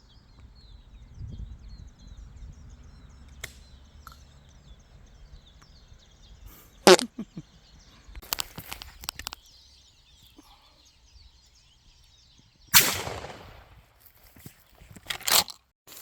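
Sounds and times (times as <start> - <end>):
faint bird chirping: 0.0 - 13.8
shotgun shot: 12.8 - 13.9.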